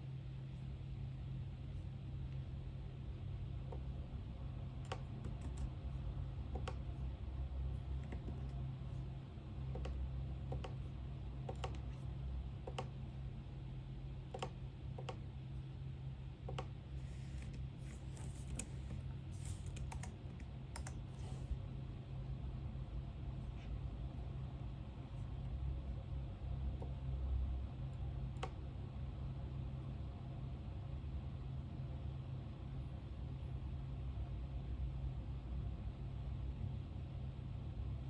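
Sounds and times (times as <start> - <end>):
low room hum: 0.0 - 38.0
keystrokes on computer keyboard: 4.8 - 5.8, 6.4 - 7.0, 8.0 - 8.6, 9.6 - 13.1, 14.3 - 15.3, 16.4 - 21.2, 28.3 - 28.6.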